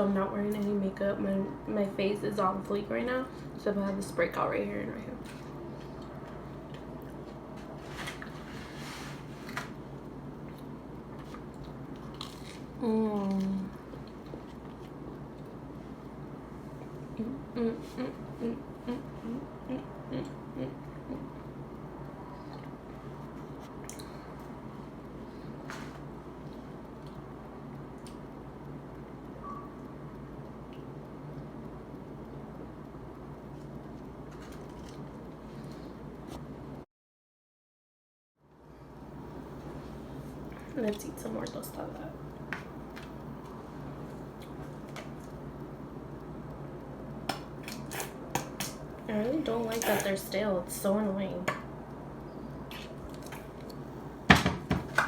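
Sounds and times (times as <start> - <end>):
steady low hum: 0.0 - 36.8, 38.4 - 55.0
person chewing: 10.4 - 15.6, 22.1 - 24.6.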